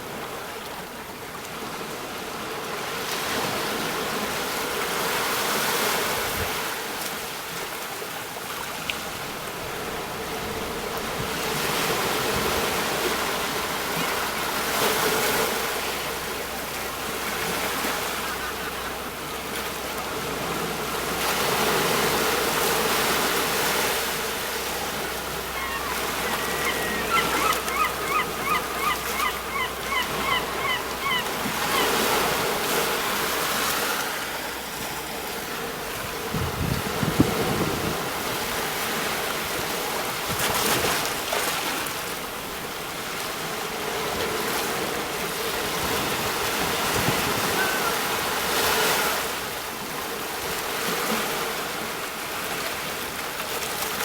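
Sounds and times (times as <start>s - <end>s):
sea waves breaking on shore: 0.0s - 54.0s
bird repeated calls: 25.5s - 32.1s.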